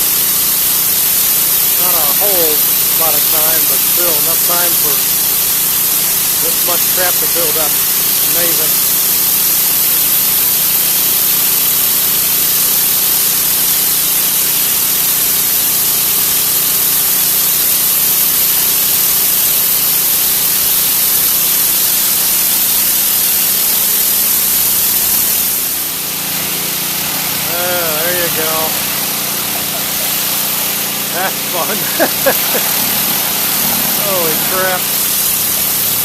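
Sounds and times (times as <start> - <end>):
pressure washer spraying concrete: 0.0 - 36.0
engine running: 25.1 - 36.0.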